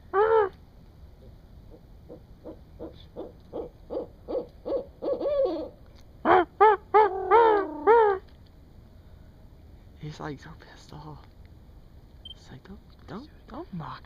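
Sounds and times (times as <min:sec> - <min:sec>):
owl hooting: 0:00.0 - 0:00.6, 0:01.2 - 0:08.3.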